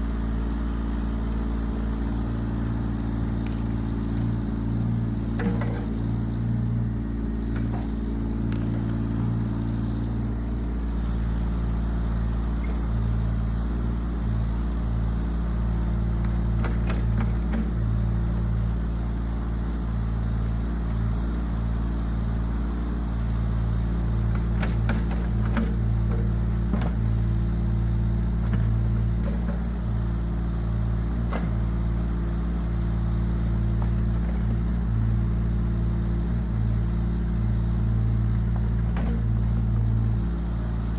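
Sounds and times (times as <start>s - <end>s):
diesel engine running: 0.0s - 40.9s
short knocks and clanks: 5.2s - 6.2s, 7.4s - 8.9s, 24.3s - 27.1s, 28.4s - 29.9s, 38.4s - 39.5s.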